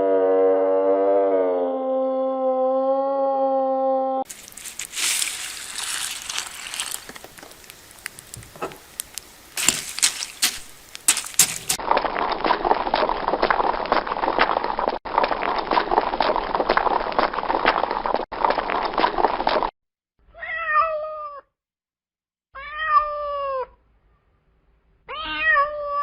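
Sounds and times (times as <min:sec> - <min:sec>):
horse hooves clip-clopping: 0:04.3 - 0:11.8
crackling noise with sharp clicks: 0:04.3 - 0:19.7.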